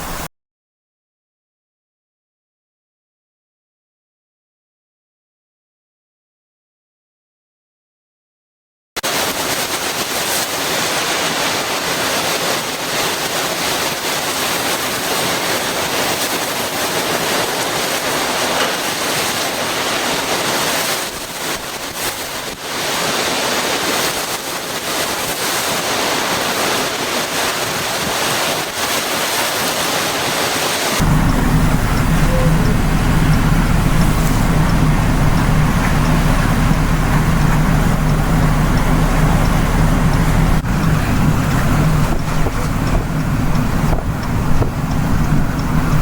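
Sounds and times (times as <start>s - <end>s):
heavy storm rain and wind: 0.0s - 0.3s, 9.0s - 46.0s
low steady hum: 31.0s - 46.0s.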